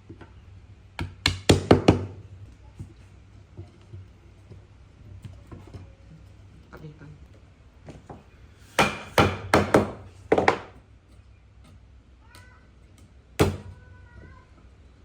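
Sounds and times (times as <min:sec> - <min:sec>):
sharp knocks on wood: 0:08.8 - 0:10.8.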